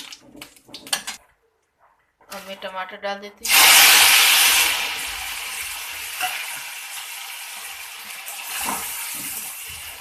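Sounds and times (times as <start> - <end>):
tomatoes sizzling in hot oil: 3.4 - 10.0.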